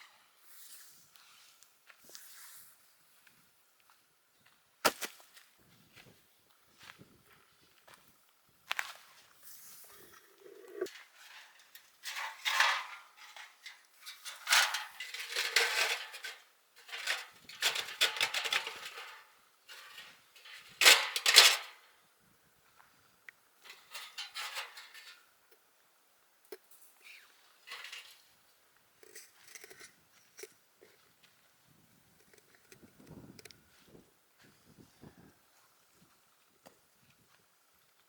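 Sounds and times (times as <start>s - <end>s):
cookware clattering and rustling: 10.9s - 21.8s.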